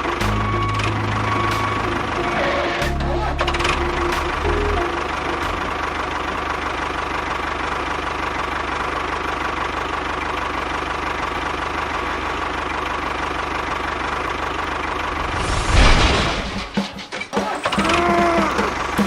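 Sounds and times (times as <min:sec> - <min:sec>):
loud burst of noise: 0:15.1 - 0:16.9.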